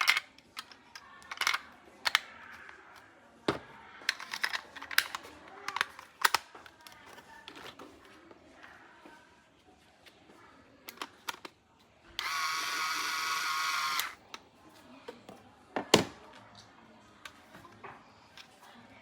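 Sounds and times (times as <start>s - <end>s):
plastic toys clicking and snapping: 0.0s - 3.1s, 4.0s - 7.9s, 10.8s - 11.6s, 12.2s - 14.4s
faint rustle of packaging: 0.0s - 12.4s.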